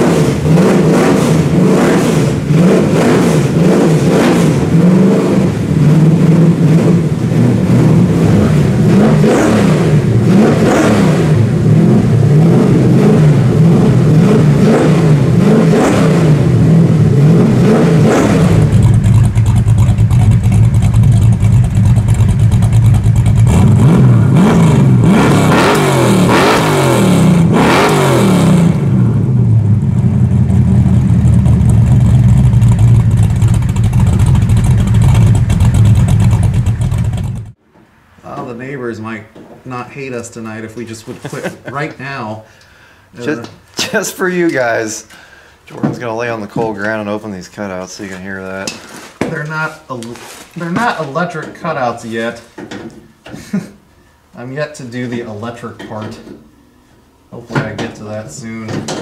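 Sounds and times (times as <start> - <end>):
engine revving: 0.0 - 37.6
car engine lopey idle: 18.6 - 24.4, 29.5 - 37.6.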